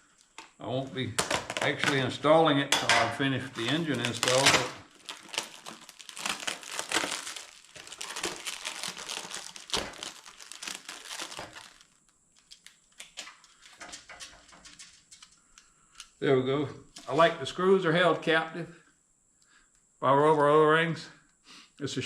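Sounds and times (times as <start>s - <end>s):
packaging crinkling and rustling: 1.2s - 15.4s.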